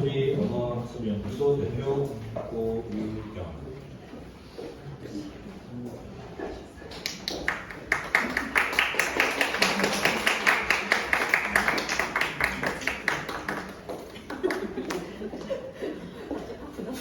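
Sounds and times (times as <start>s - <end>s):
audience applauding: 7.0s - 15.2s.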